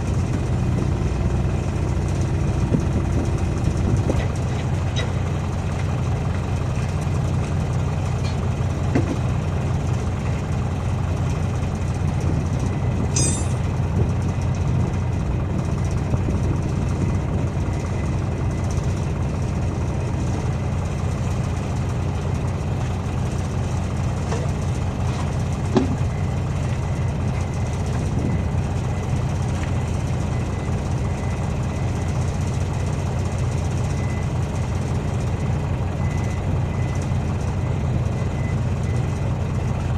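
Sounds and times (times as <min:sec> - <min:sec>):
diesel engine idling: 0:00.0 - 0:39.9
metal knocks and clinks: 0:13.2 - 0:13.6.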